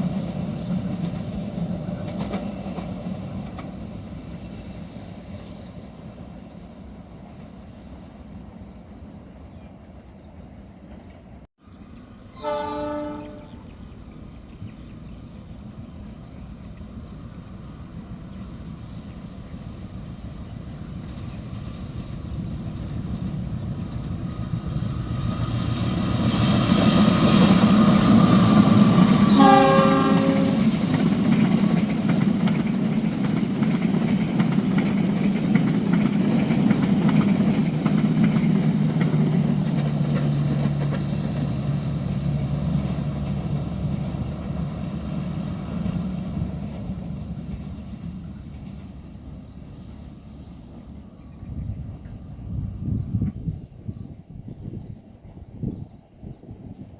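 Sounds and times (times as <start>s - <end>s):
wagons clickety-clack: 0.0s - 5.6s, 30.4s - 51.1s
train rumble: 0.0s - 56.9s
train horn blast: 12.3s - 13.8s, 29.1s - 31.0s.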